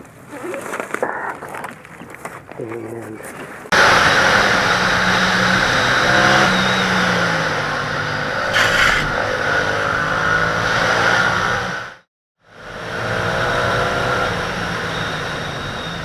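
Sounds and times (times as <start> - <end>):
wind rushing over microphone: 8.4 - 10.3
short hiss-like burst: 8.5 - 9.2.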